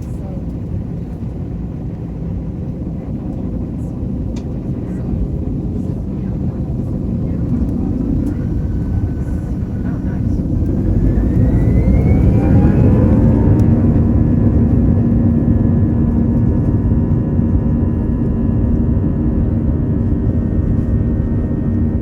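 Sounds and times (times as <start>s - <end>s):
heavy engine rumble: 0.0s - 17.1s
jet engine whine: 0.0s - 22.0s.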